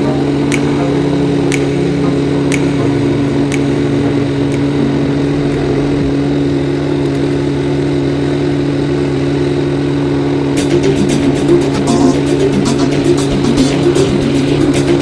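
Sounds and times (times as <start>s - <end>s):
faint ticks: 0.0s - 4.8s
engine running steadily: 0.0s - 15.0s.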